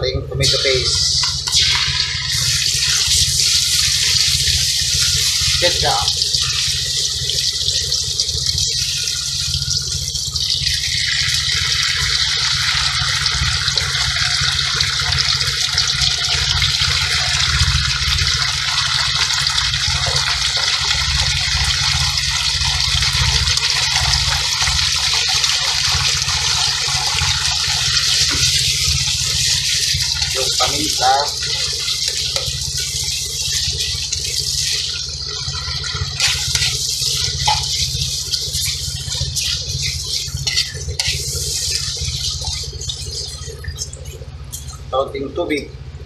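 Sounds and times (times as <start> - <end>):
sauce sizzling in hot oil: 0.5 - 44.8.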